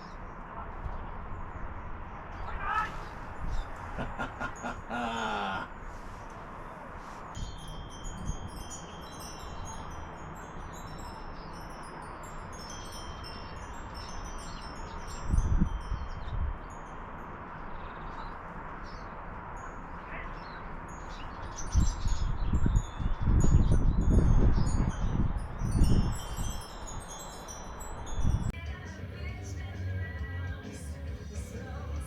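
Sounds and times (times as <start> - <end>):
wind rumble on microphone: 0.0 - 5.0, 5.7 - 30.6
wind chime ringing: 7.4 - 19.0, 19.6 - 28.6.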